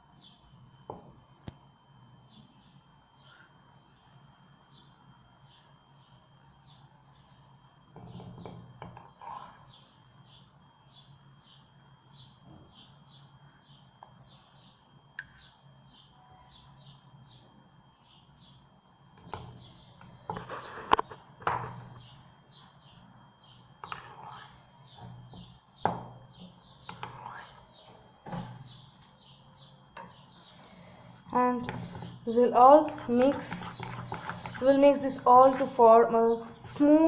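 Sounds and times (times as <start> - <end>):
bird chirping: 21.8 - 32.5
spoon scraping tin can and mug: 32.8 - 34.8.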